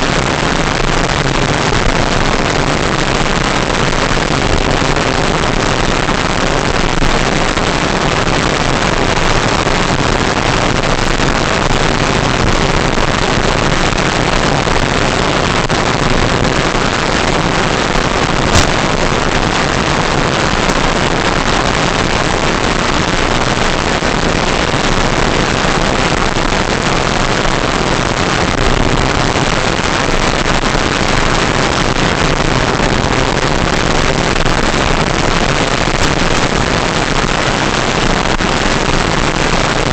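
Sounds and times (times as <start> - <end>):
short click: 18.5 - 18.9.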